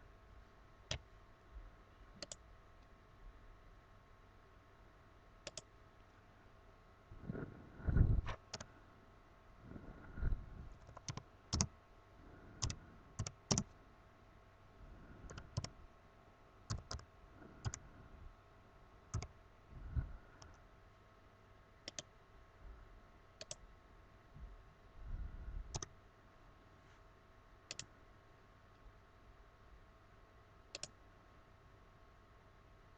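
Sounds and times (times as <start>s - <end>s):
mouse and keyboard clicks: 2.2s - 2.4s, 5.4s - 5.7s, 10.8s - 11.7s, 12.6s - 13.7s, 16.7s - 17.0s, 19.1s - 19.3s, 21.8s - 22.1s, 23.4s - 23.6s, 25.7s - 25.9s, 27.7s - 27.9s, 30.7s - 31.0s.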